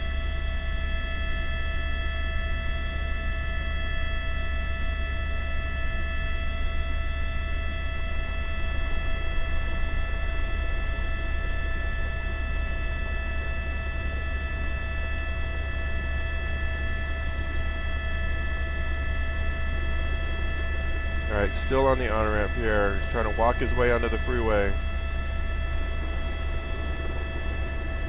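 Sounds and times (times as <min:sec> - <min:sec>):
helicopter rotor rumble: 0:00.0 - 0:28.0
turbine high whining tones: 0:00.0 - 0:28.0.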